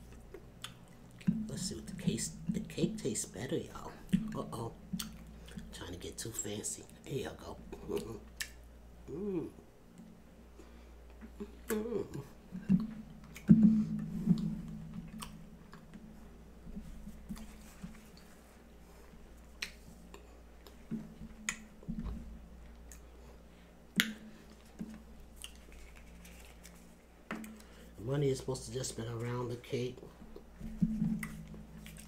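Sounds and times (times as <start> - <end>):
person chewing cake: 0.0 - 1.8, 3.7 - 5.8, 7.7 - 9.7, 10.6 - 16.0, 17.1 - 21.9, 22.6 - 23.5, 24.4 - 27.9, 31.2 - 32.0.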